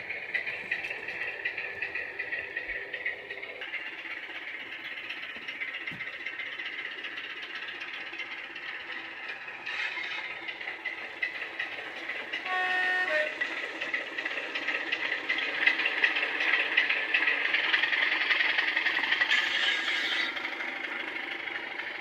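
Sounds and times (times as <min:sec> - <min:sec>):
diesel engine sound through small speaker: 0:00.0 - 0:22.0
two-tone horn: 0:12.4 - 0:13.4.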